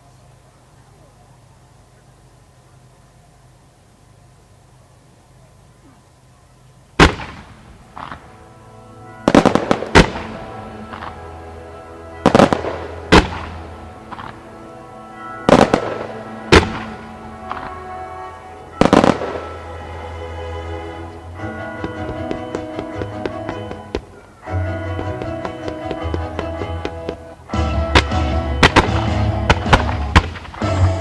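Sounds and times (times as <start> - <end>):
fireworks bursting with sharp bangs: 7.0 - 8.5, 9.2 - 11.6, 12.2 - 14.8, 15.4 - 18.1, 18.7 - 31.0
music playing: 8.0 - 31.0.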